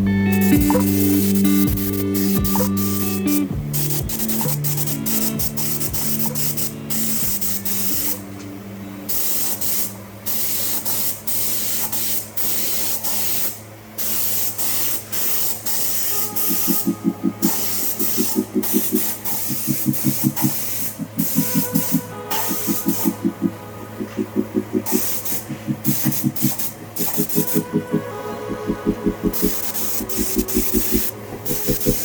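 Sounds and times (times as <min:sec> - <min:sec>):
fast rhythmic pulsing: 0:00.0 - 0:08.3, 0:15.9 - 0:32.0
steady low hum: 0:00.0 - 0:32.0
airbrush hissing bursts: 0:00.3 - 0:08.2, 0:09.1 - 0:23.2, 0:24.8 - 0:27.8, 0:29.2 - 0:32.0.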